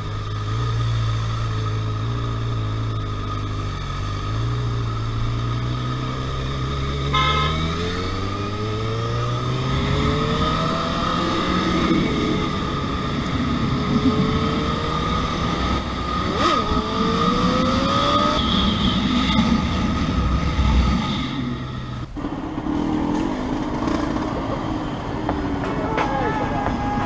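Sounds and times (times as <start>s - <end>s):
motorcycle engine accelerating: 0.0s - 25.7s
quieter engine background: 0.0s - 27.0s.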